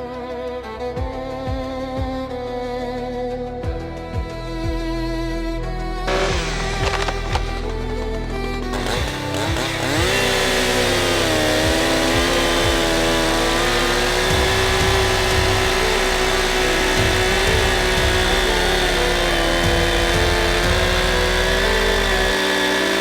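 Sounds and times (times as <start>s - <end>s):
chainsaw revving: 6.1s - 23.0s.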